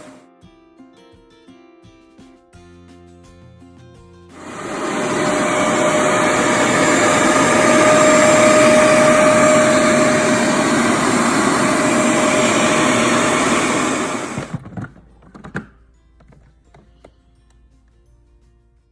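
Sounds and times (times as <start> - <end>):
carpet cleaner motor whooshing: 0.0 - 0.2, 4.4 - 14.6.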